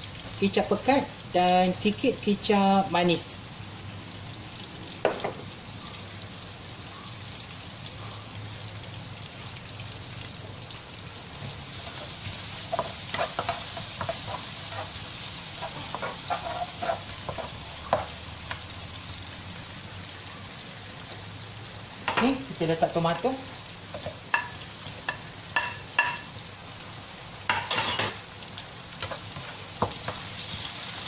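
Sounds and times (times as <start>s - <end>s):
food sizzling in hot oil: 0.0s - 31.0s
spatula scraping a pan: 11.8s - 18.1s.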